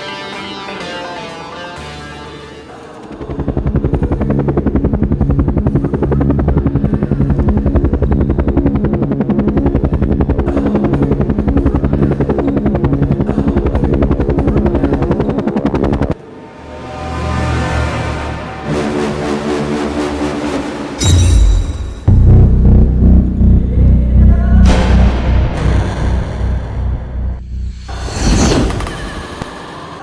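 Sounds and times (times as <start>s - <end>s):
helicopter rotor chopping: 2.8s - 16.2s.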